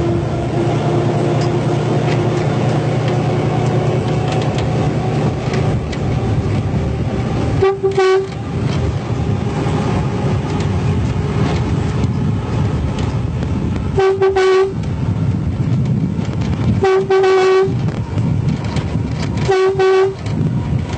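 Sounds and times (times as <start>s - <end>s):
train rumbling: 0.0s - 20.9s
train horn blast: 7.4s - 8.7s, 13.9s - 14.9s, 16.8s - 17.9s, 19.4s - 20.4s.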